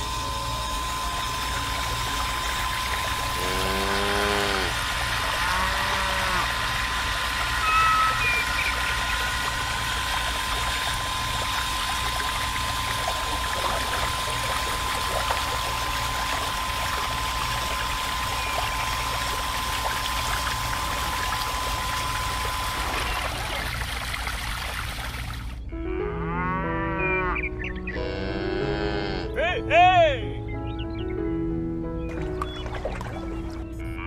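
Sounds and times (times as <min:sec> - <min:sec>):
water jet splashing into water: 0:00.0 - 0:25.6
thin pump whine: 0:00.0 - 0:25.8.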